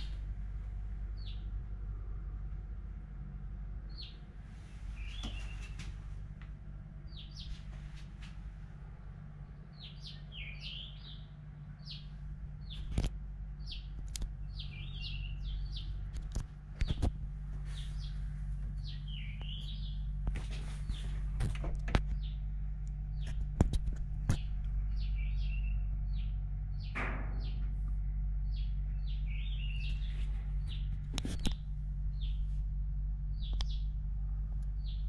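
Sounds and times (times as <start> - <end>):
songbirds chirping: 0.0 - 35.0
steady low hum: 0.0 - 35.0
sharp clicks: 13.9 - 14.4.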